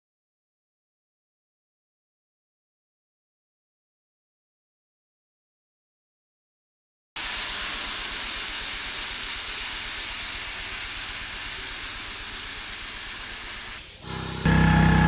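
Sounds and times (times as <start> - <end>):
pressure washer water jet hissing: 7.2 - 15.0
low engine pulse: 14.0 - 15.0.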